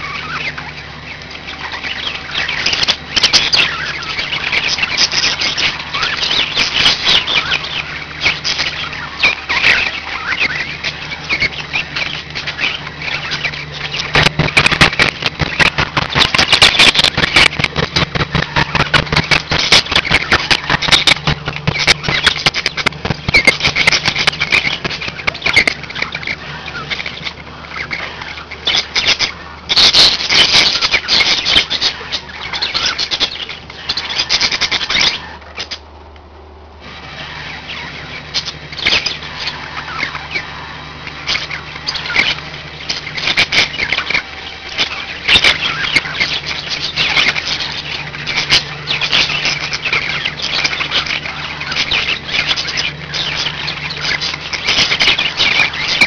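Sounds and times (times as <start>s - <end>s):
budgerigars chirping and warbling: 0.0s - 35.9s, 36.8s - 56.0s
steady low hum: 0.0s - 56.0s.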